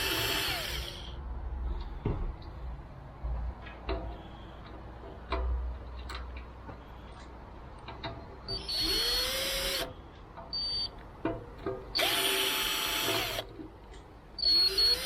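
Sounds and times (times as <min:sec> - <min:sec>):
power drill spinning up: 0:00.0 - 0:01.1, 0:08.6 - 0:09.9, 0:12.0 - 0:13.4, 0:14.4 - 0:15.0
parts clicking and knocking: 0:03.4 - 0:14.3.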